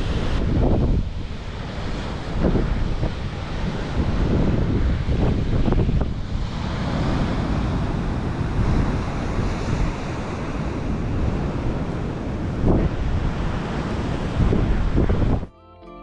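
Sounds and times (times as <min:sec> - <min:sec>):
sea surf: 0:00.0 - 0:15.5
wind buffeting microphone: 0:00.0 - 0:15.5.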